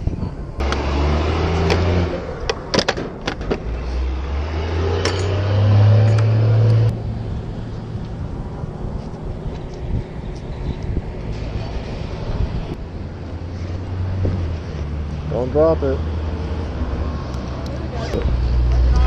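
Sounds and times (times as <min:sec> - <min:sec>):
motorcycle engine revving: 0:00.6 - 0:02.5, 0:03.7 - 0:08.7.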